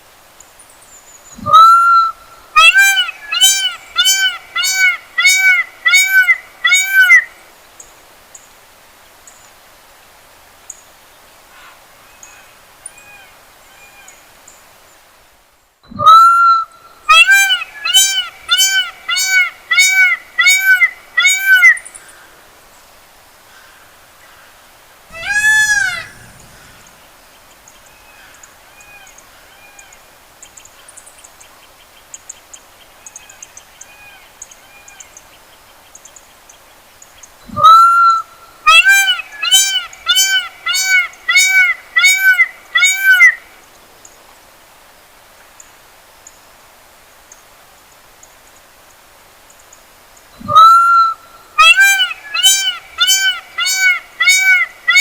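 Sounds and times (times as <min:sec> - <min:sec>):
peacock calling: 0:01.4 - 0:07.3, 0:16.0 - 0:22.0, 0:25.1 - 0:30.0, 0:37.6 - 0:43.4, 0:50.4 - 0:55.0
faint small birds chirping: 0:25.1 - 0:37.5.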